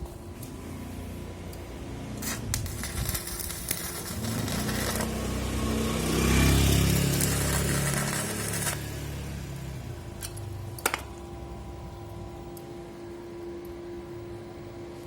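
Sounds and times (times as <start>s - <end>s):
welding arc crackling: 1.4s - 11.0s.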